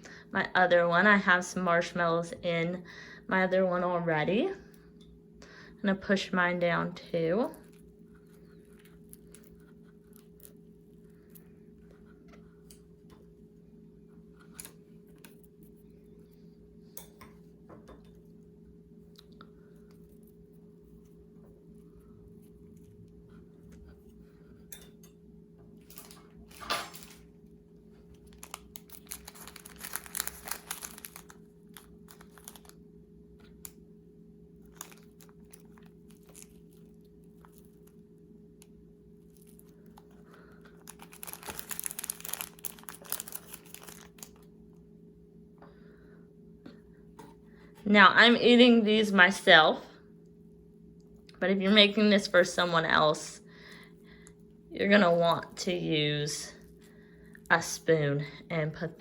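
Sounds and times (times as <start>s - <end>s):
low electrical hum: 0.0s - 59.0s
plastic wrapper crinkling: 27.9s - 32.8s, 34.6s - 38.0s, 39.2s - 44.5s.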